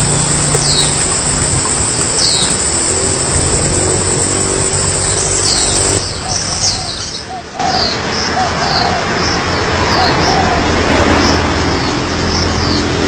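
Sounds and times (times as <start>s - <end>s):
small bird chirping: 0.0s - 10.2s
loud steady background noise: 0.0s - 13.0s.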